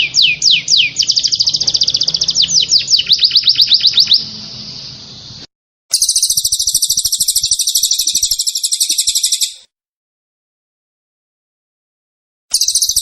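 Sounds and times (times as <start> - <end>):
fast buzzy bird trill: 0.0 - 9.6, 12.5 - 13.0
songbird whistled notes: 0.0 - 9.7, 12.5 - 13.0.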